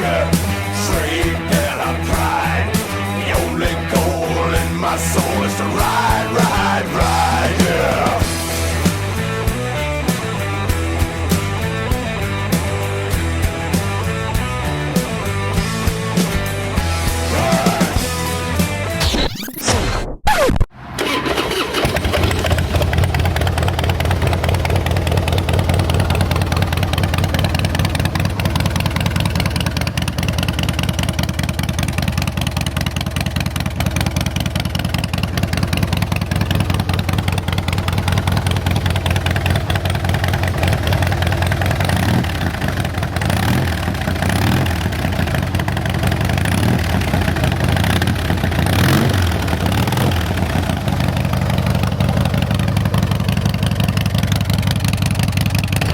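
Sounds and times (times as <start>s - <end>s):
motorcycle engine idling: 0.0s - 18.5s, 20.8s - 55.9s
motorcycle throttle blips: 20.8s - 55.9s.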